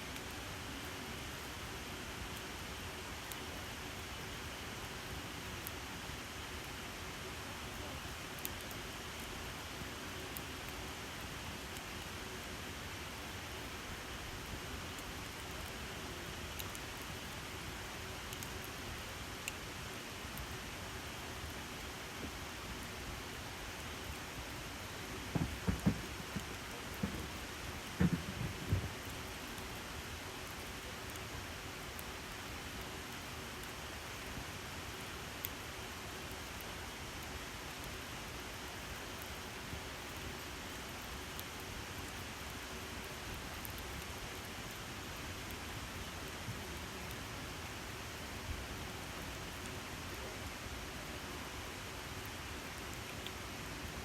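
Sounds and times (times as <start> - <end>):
campfire hissing: 0.0 - 54.0
fire crackles: 0.0 - 54.0
fire pops and knocks: 25.2 - 29.2.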